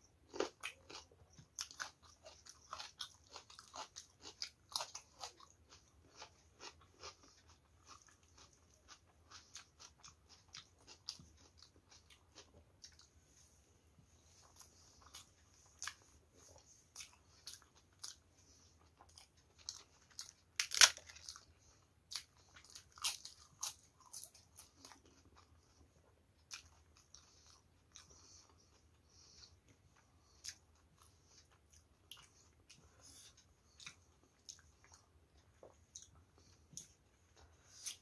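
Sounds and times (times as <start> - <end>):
person chewing with crunches: 0.0 - 38.0.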